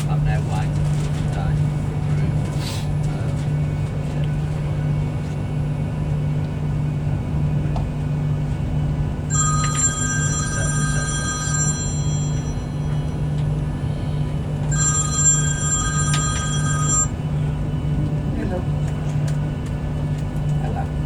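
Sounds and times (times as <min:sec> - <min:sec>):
train carriage low hum: 0:00.0 - 0:21.0
electronic ringing tone: 0:09.3 - 0:13.4, 0:14.6 - 0:17.2.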